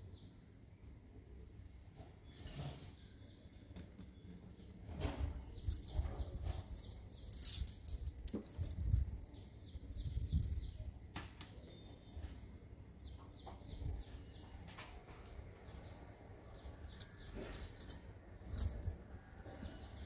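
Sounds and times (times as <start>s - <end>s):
small birds chirping: 0.0s - 0.6s, 1.3s - 12.2s, 13.0s - 20.0s
glass bangles clicking: 5.7s - 9.0s, 16.9s - 18.9s.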